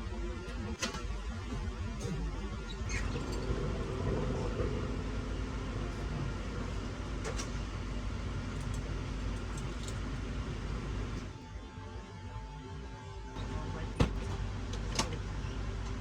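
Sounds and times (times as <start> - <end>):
cabin ventilation hum: 2.0 - 11.5, 13.3 - 16.0.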